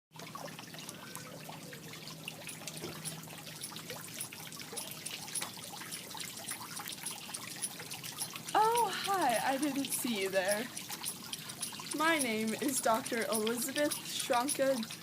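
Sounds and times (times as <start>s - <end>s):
faint ticks and drips: 0.1s - 15.0s
water trickling: 0.1s - 15.0s.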